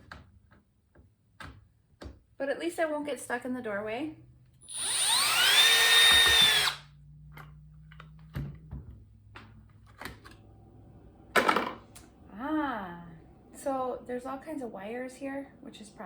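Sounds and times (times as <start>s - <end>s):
power drill whining: 4.6s - 6.8s.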